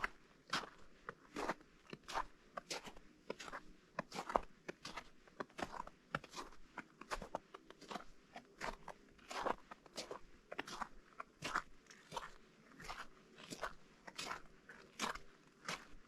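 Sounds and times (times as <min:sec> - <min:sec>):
footsteps crunching on slushy snow: 0:08.6 - 0:16.0.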